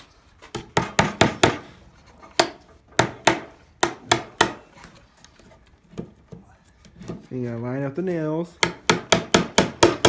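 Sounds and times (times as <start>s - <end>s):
hammer driving nails into wood: 0.5s - 1.7s, 2.3s - 4.7s, 8.6s - 10.0s.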